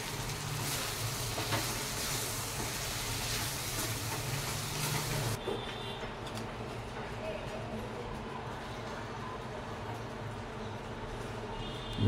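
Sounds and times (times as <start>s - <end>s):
curry sizzling: 0.0s - 5.4s.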